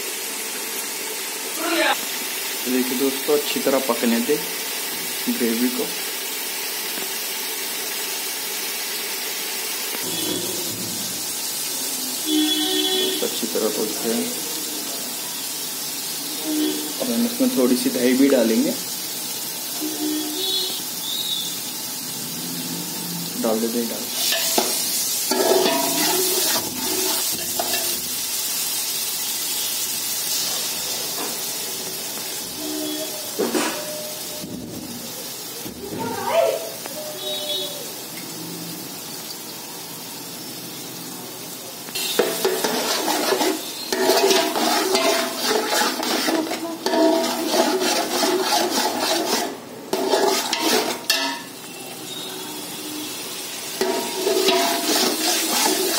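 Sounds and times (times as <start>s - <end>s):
paste sizzling in hot oil: 0.0s - 55.9s
steel spatula scraping a pot: 24.2s - 28.0s, 42.0s - 51.5s, 53.8s - 55.9s.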